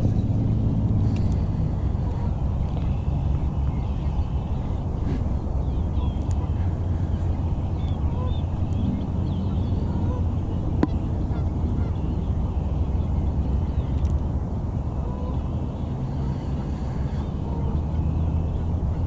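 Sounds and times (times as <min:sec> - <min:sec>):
steady low rumble: 0:00.0 - 0:19.0
small birds chirping: 0:01.0 - 0:14.2
geese honking: 0:07.9 - 0:08.4, 0:09.4 - 0:12.2.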